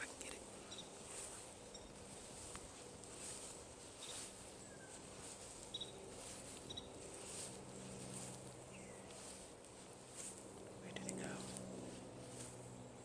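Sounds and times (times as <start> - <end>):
faint bird chirps: 0.7 - 1.0, 1.6 - 2.0, 4.0 - 6.0, 6.6 - 7.0.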